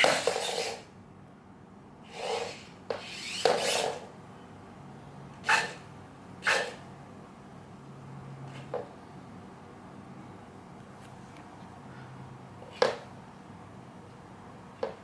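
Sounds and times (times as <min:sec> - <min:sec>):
electric motors whirring: 0:00.0 - 0:00.8, 0:02.1 - 0:04.1.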